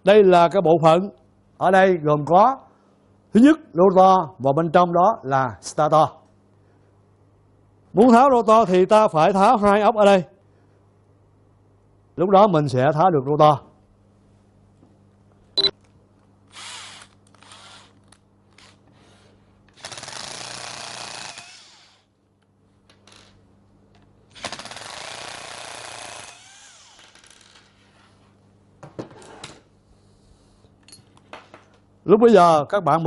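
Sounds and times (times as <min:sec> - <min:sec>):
power screwdriver whirring: 0:16.5 - 0:18.0.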